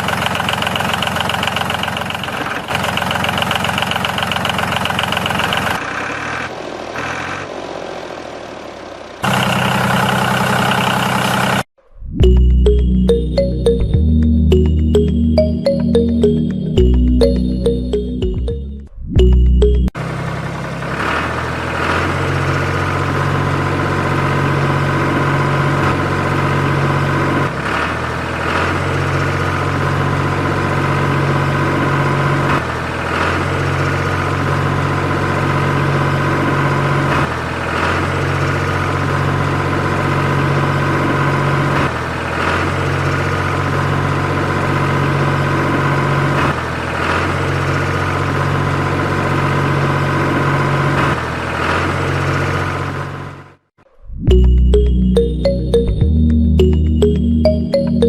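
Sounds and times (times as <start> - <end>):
tractor engine idling: 0.0 - 11.7.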